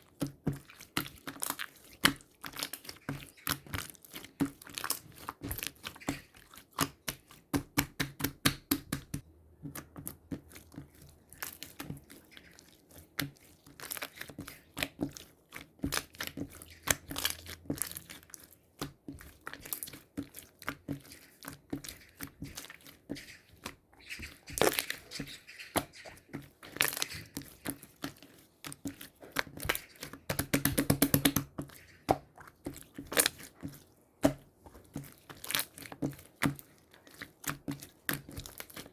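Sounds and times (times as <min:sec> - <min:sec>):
crinkling handling noise: 0:09.6 - 0:38.9.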